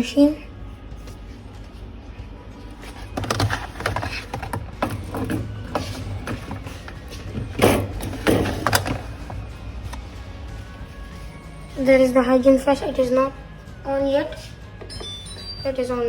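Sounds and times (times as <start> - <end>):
containers rattling in refrigerator: 3.0 - 9.2.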